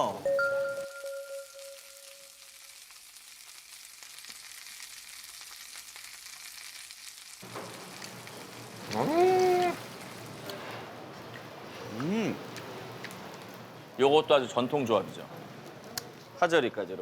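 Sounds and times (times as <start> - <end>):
meat sizzling on a grill: 1.5 - 10.8.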